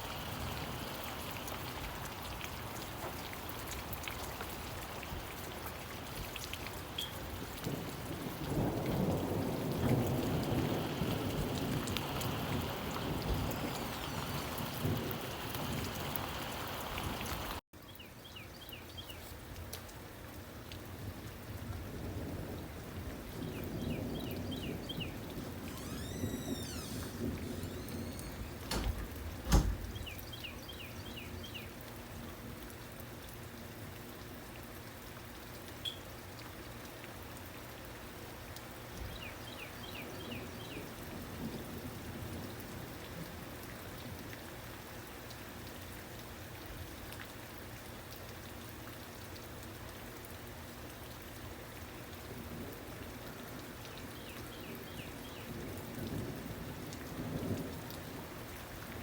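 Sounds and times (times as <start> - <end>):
rain falling: 0.0 - 59.0
high chirps: 25.7 - 28.6
low rumble and thump: 25.7 - 30.3.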